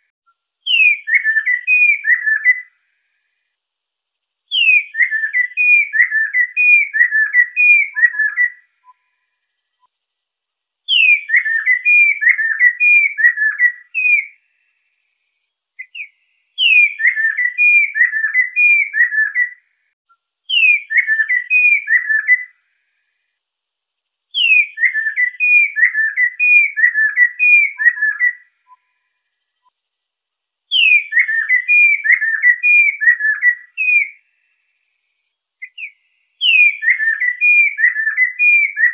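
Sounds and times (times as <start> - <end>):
laughingthrush whistled song: 0.2 - 2.8, 4.5 - 9.2, 10.9 - 14.5, 15.8 - 19.7, 20.5 - 22.6, 24.4 - 29.1, 30.7 - 34.4, 35.6 - 38.9.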